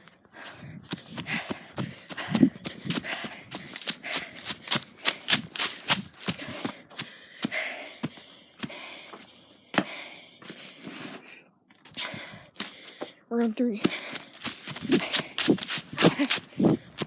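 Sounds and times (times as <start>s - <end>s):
footsteps crunching in snow: 0.4s - 8.8s, 13.4s - 17.0s.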